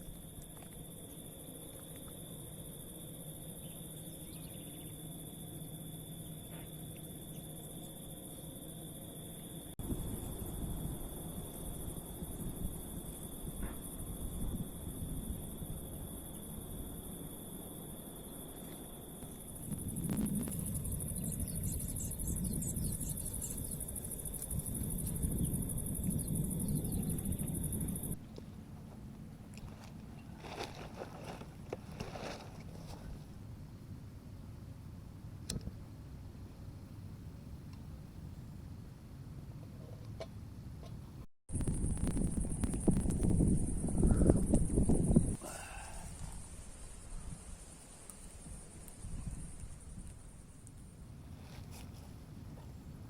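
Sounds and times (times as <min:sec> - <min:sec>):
crickets chirring: 0:00.0 - 0:28.2, 0:41.5 - 0:53.0
insects trilling: 0:00.0 - 0:28.2, 0:41.5 - 0:51.8
low rumbling noise: 0:19.6 - 0:29.5, 0:41.5 - 0:47.4.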